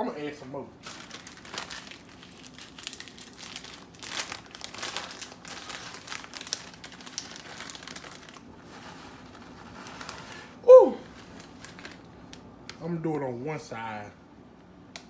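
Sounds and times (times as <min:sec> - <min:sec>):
plastic packaging crinkling: 0:00.8 - 0:12.5.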